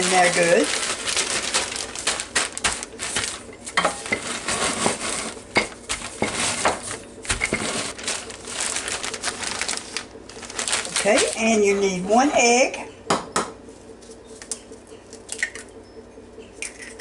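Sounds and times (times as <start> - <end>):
fried onions crushed crackling: 0.0 - 11.6
plastic bag crinkling: 0.0 - 12.0.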